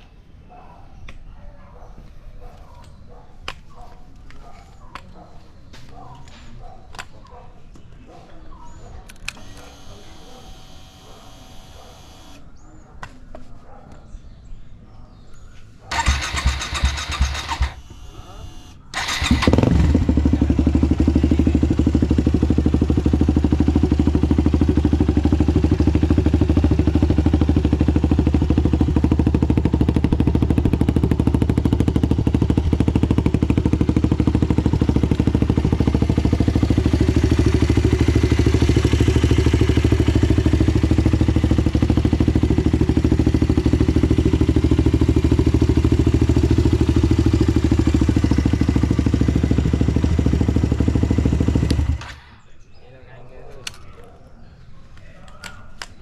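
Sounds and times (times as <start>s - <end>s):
motorcycle engine idling: 15.9s - 52.1s.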